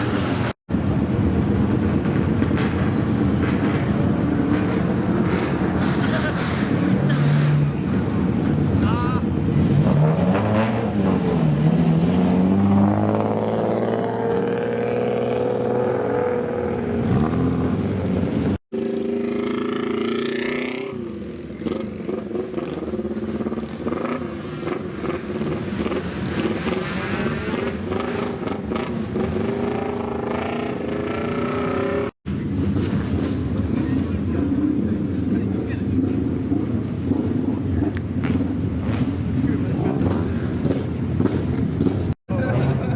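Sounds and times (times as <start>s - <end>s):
car engines idling and revving: 0.0s - 42.9s.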